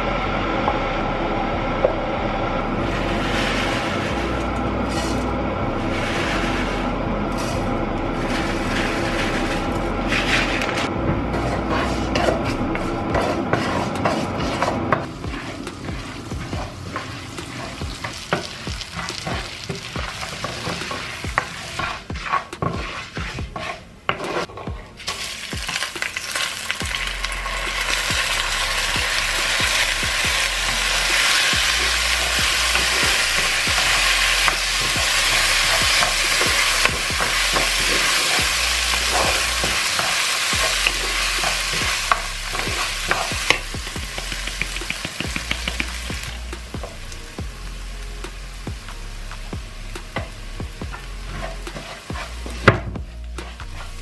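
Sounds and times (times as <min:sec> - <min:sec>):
food sizzling in a pan: 0:02.9 - 0:05.2, 0:05.8 - 0:06.8, 0:11.7 - 0:54.0.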